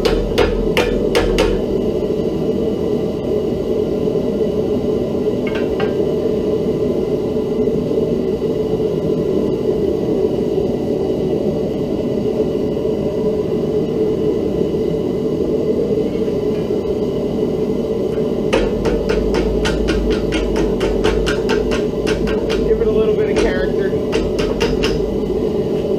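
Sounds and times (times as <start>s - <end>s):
hammer strikes on hot steel: 0.0s - 1.7s, 5.5s - 6.0s, 18.2s - 25.1s
forge burner roaring: 0.0s - 25.9s.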